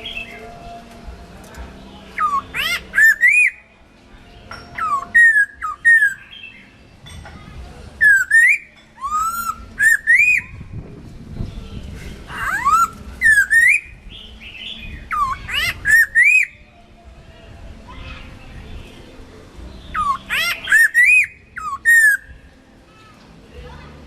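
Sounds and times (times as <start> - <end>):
bird singing whistled notes: 0.0 - 0.8, 2.0 - 3.7, 4.4 - 6.8, 8.0 - 10.8, 11.4 - 16.8, 19.7 - 22.6.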